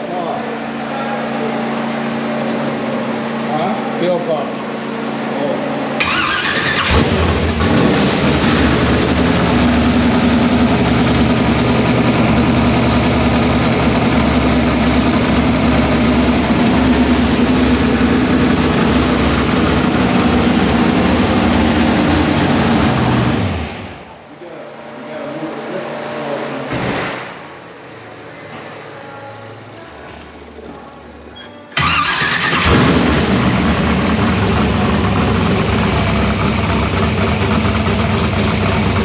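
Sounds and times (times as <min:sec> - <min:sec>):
loud engine running: 0:00.0 - 0:28.4, 0:31.8 - 0:39.0
car starter cranking: 0:06.0 - 0:07.8, 0:31.8 - 0:33.4.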